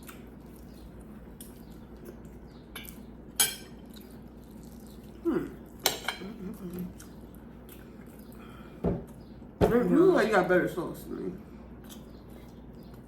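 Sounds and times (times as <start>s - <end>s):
cutlery clinking on dishes: 2.8s - 3.8s, 5.8s - 6.3s
person humming: 5.2s - 5.6s.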